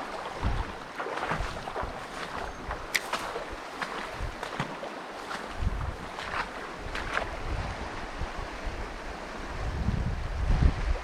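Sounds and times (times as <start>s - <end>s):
water splashes: 0.0s - 8.2s
river water rushing: 0.0s - 9.7s
wind buffeting microphone: 0.0s - 11.0s.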